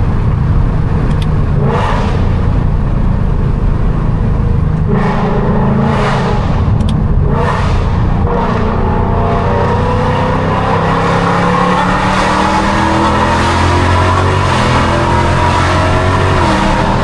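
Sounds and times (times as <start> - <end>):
car exhaust under hard acceleration: 0.0 - 17.0.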